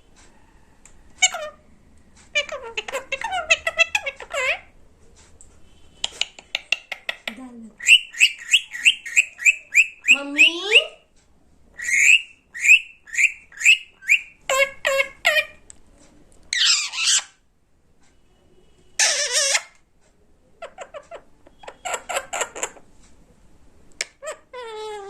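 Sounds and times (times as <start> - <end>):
parrot chirping and squawking: 1.2 - 4.8, 6.0 - 11.0, 11.8 - 15.6, 16.5 - 17.4, 19.0 - 19.8, 20.6 - 22.9, 24.0 - 25.0.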